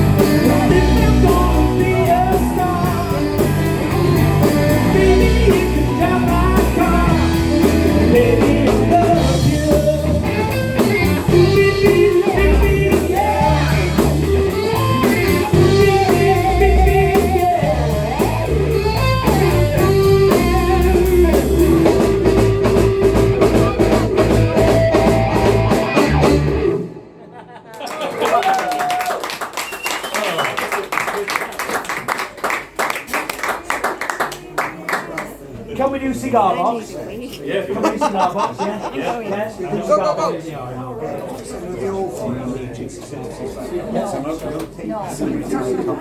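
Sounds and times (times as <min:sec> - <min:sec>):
person singing: 0:00.0 - 0:25.5
drum kit: 0:00.0 - 0:27.1
bass guitar: 0:00.0 - 0:27.2
electric guitar: 0:00.0 - 0:27.4.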